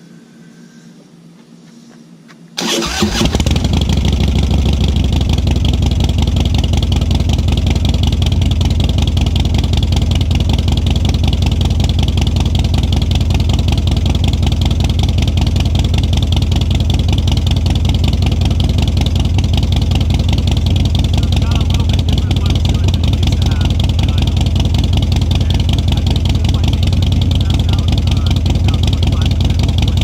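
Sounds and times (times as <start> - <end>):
motorcycle engine idling: 2.6 - 30.0.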